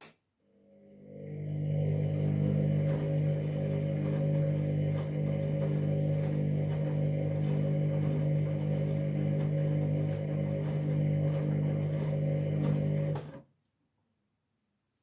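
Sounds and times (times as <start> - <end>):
washing machine humming: 0.9 - 13.4.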